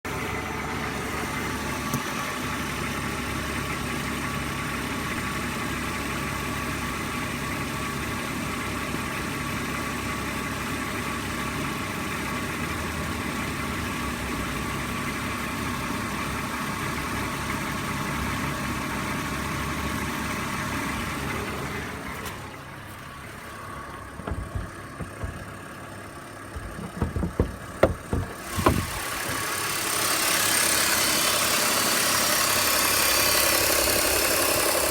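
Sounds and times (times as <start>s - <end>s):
car engine idling: 0.1s - 34.9s
thumps: 24.0s - 25.7s, 26.5s - 29.4s.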